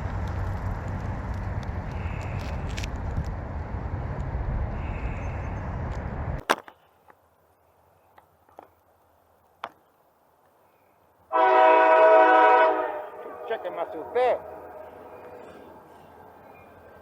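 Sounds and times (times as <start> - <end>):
wind rushing on microphone: 0.0 - 6.4
loud train horn: 11.3 - 15.2.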